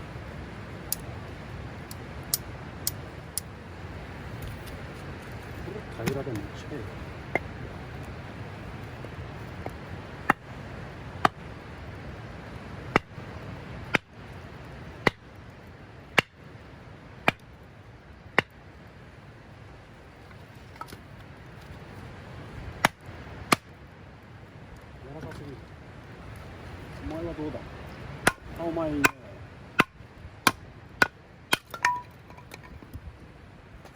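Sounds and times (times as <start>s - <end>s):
sharp hard knocks: 28.3s - 29.2s.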